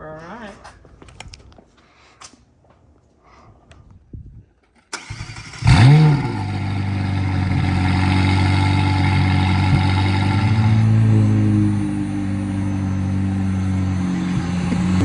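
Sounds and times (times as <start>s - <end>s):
car engine starting and idling: 4.9s - 15.0s.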